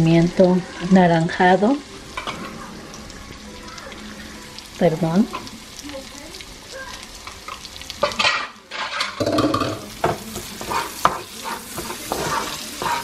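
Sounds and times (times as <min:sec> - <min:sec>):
peppers sizzling in a pan: 0:00.0 - 0:13.0
wooden spoon scraping a pan: 0:08.0 - 0:13.0.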